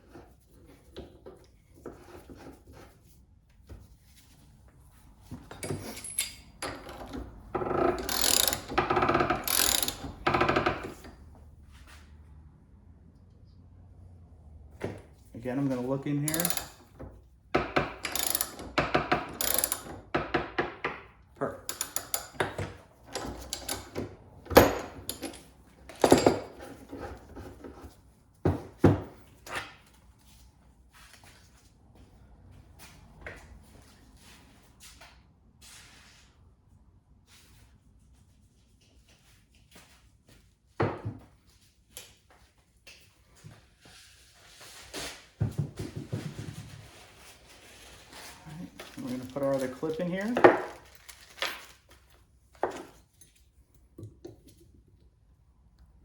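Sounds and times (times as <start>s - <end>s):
metal tools clicking: 5.8s - 7.2s, 7.9s - 8.8s, 9.4s - 10.2s, 16.3s - 16.9s, 18.0s - 18.7s, 19.3s - 19.9s, 21.6s - 24.0s, 24.6s - 26.4s.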